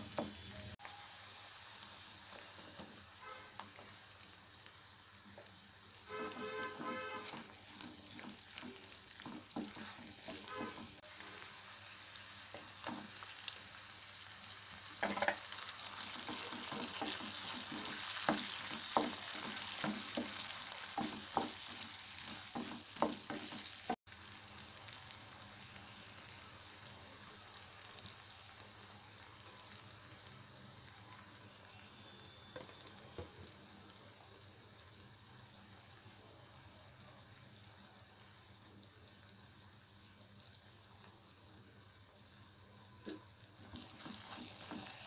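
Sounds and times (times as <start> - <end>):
vegetables sizzling in hot oil: 0.0 - 45.0
spoon scraping and clacking on pan: 15.0 - 24.0.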